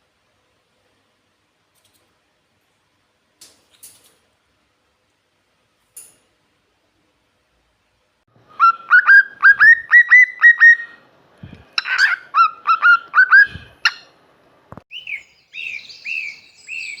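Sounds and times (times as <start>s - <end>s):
cockatiel chirping: 14.9s - 17.0s
cockatiel high falling calls: 14.9s - 17.0s.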